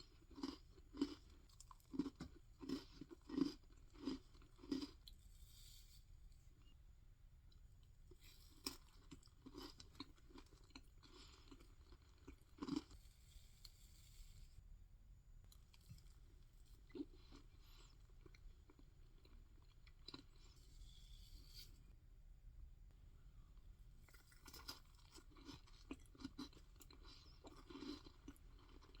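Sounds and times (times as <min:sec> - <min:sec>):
chewing and mouth sounds: 0:00.0 - 0:05.2, 0:08.6 - 0:13.0, 0:24.0 - 0:29.0
low steady hum: 0:00.0 - 0:29.0.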